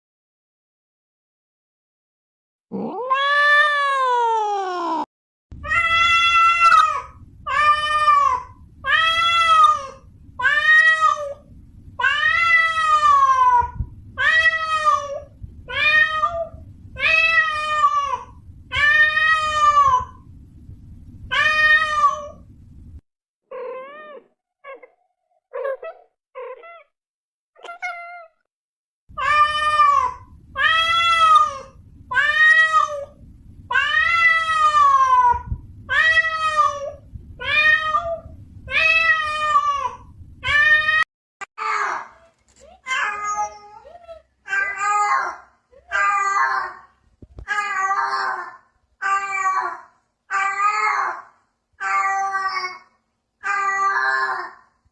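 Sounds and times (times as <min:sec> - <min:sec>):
cat meowing: 0:02.8 - 0:05.0, 0:23.5 - 0:25.0
low hum: 0:05.5 - 0:23.0, 0:29.1 - 0:41.0.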